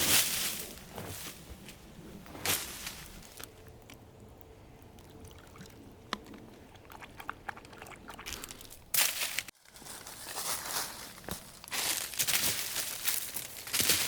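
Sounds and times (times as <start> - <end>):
twigs rustling: 0.0 - 5.2, 8.3 - 14.0.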